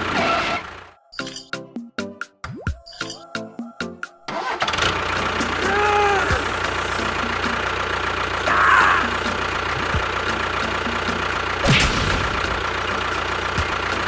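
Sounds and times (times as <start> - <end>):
background music: 0.0 - 14.0
motor humming: 4.4 - 14.0.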